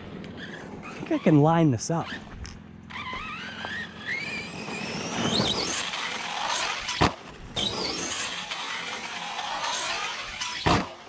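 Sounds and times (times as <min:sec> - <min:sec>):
electric motor whining: 0:00.2 - 0:11.0
sharp thump: 0:06.9 - 0:07.2.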